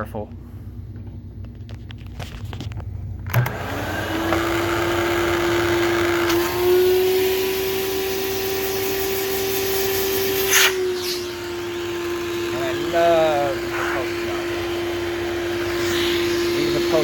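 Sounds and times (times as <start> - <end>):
vacuum motor whining: 3.2 - 17.0
vacuum switch click: 3.3 - 4.5.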